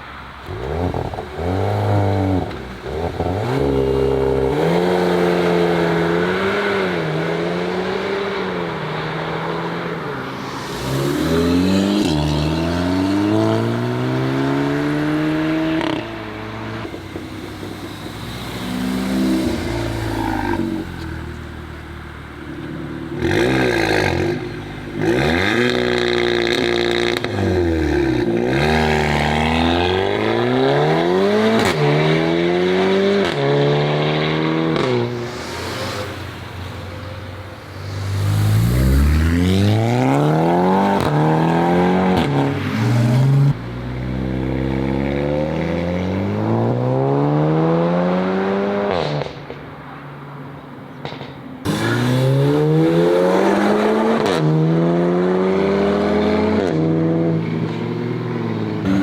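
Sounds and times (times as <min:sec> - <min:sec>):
car engine accelerating hard: 0:37.6 - 0:49.4.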